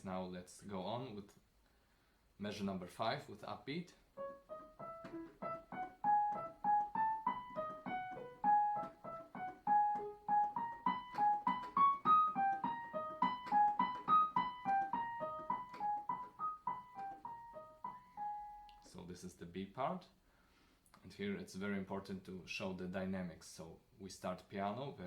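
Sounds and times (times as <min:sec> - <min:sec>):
solo piano playing quick notes: 0:04.2 - 0:18.9.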